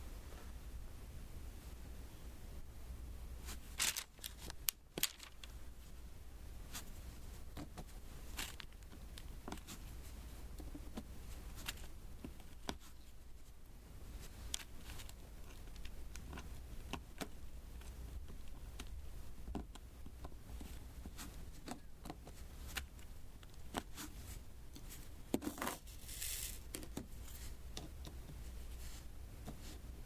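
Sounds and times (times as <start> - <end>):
scratchy rustle: 23.8 - 27.6.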